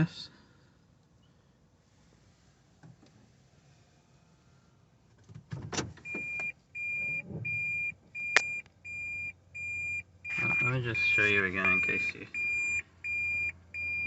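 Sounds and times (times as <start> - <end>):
car warning beeper: 6.0 - 14.0.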